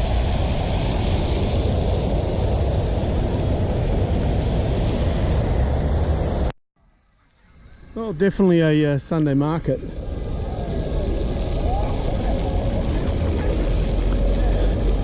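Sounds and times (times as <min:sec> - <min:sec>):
motorcycle low rumble: 0:00.0 - 0:06.5, 0:09.6 - 0:15.0
wind rush over microphone: 0:00.0 - 0:06.5, 0:09.7 - 0:15.0.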